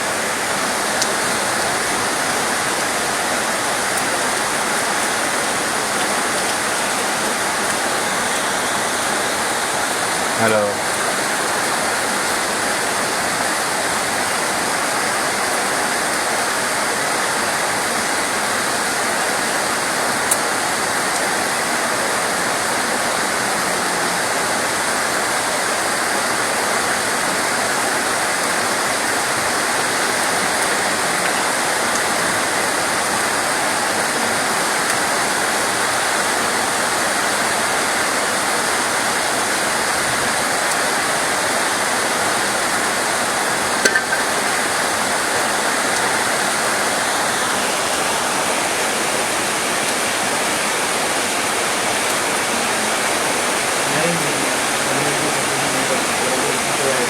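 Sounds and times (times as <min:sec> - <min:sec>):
heavy rain hiss: 0:00.0 - 0:57.0.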